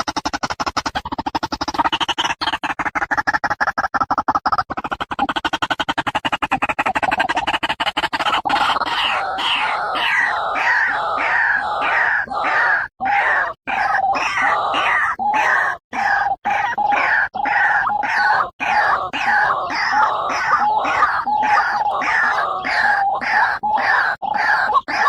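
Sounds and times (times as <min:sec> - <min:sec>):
waterhen calling: 0:08.2 - 0:25.0.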